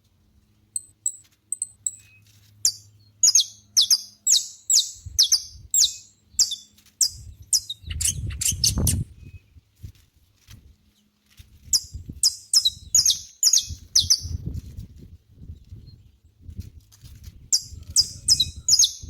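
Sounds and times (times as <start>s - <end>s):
finch singing whistled notes: 0.8s - 9.5s, 11.7s - 14.4s, 17.5s - 19.0s.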